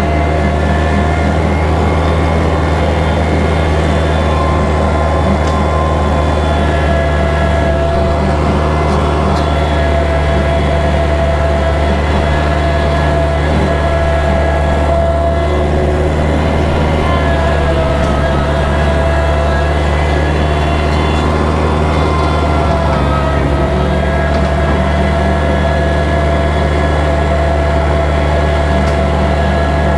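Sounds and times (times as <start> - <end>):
rotary cutter whine: 0.0 - 29.9
tractor diesel engine running: 0.0 - 29.9.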